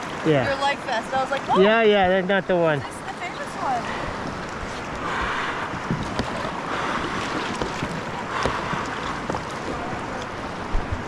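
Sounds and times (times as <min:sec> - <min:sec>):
river water rushing and splashing: 0:00.0 - 0:11.0
small knocks and drips: 0:07.1 - 0:10.3.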